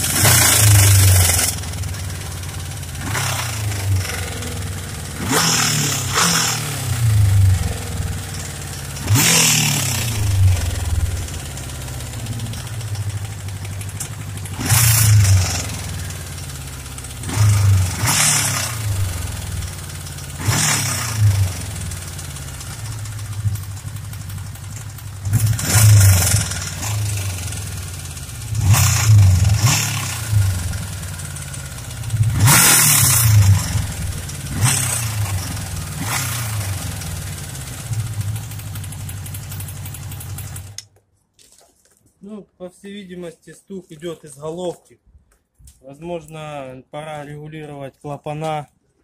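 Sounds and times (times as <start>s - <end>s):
engine knock: 0.0s - 40.8s
motorcycle engine idling: 0.0s - 40.8s.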